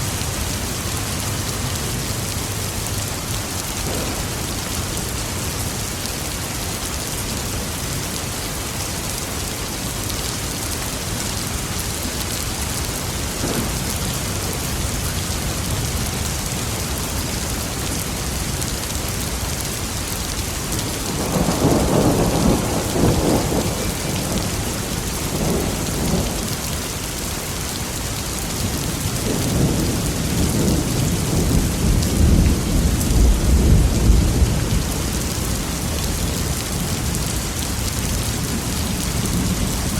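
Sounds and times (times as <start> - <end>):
heavy rain: 0.0 - 39.9
rolling thunder: 3.8 - 5.4, 20.8 - 26.7, 29.0 - 36.0.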